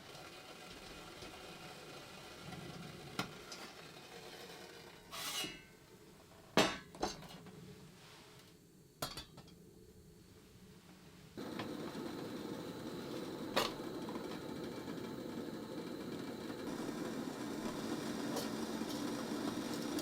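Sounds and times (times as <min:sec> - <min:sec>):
dishes and utensils clinking: 0:09.0 - 0:09.6.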